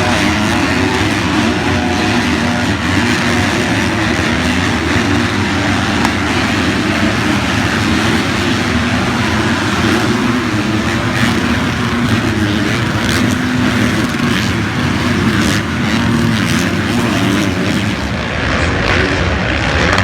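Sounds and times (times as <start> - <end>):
motocross bike engines droning: 0.0 - 20.0.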